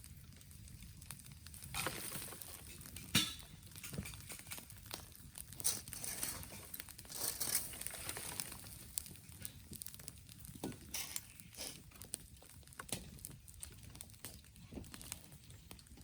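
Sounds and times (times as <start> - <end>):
dry leaves rustling: 6.0 - 8.9.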